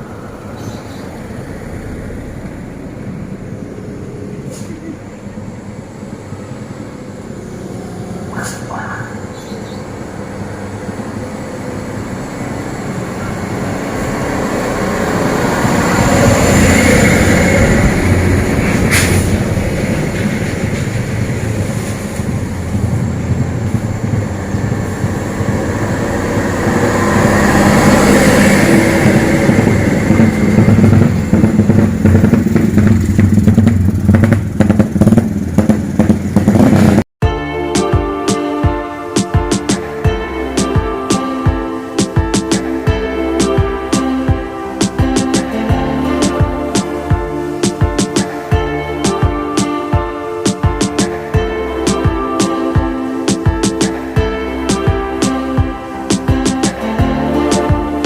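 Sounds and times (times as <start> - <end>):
heavy trucks passing on road: 0.0 - 58.0
sharp clacks: 50.5 - 51.1.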